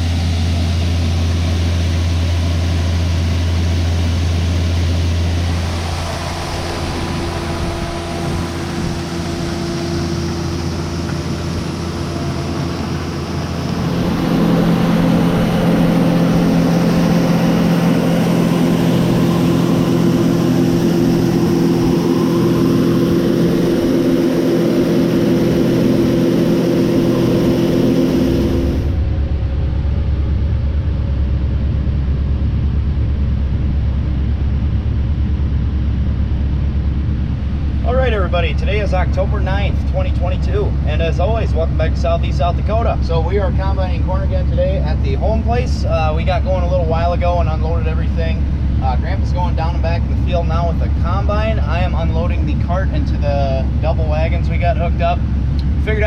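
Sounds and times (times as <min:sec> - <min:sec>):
heavy farm machinery engines: 0:00.0 - 0:56.0.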